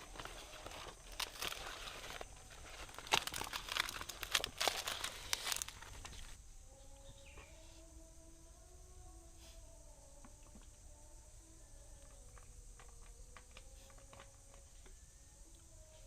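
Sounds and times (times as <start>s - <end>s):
crinkling and rustling with clicks: 0.0s - 6.4s, 12.0s - 15.7s.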